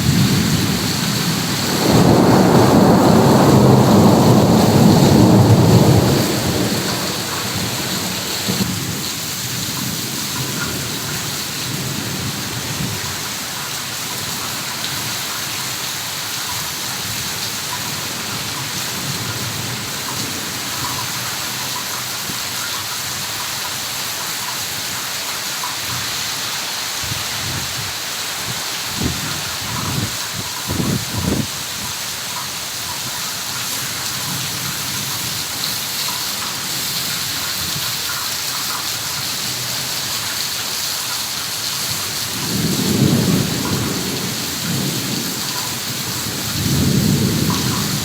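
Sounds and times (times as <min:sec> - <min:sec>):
low thunder rumble: 0:00.0 - 0:09.8, 0:28.9 - 0:31.7, 0:41.9 - 0:48.0
heavy rain pouring: 0:00.0 - 0:48.0.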